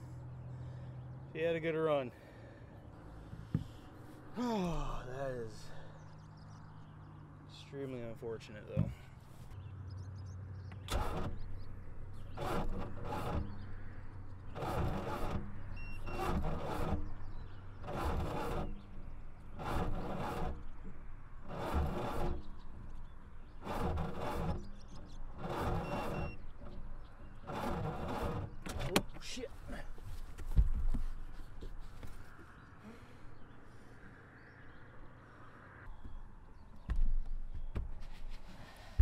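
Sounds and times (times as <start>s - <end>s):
electric starter straining: 10.7s - 29.3s.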